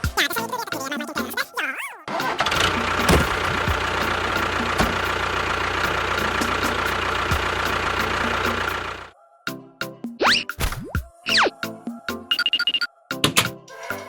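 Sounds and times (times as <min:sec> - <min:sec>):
vehicle engine running: 0:02.2 - 0:09.1.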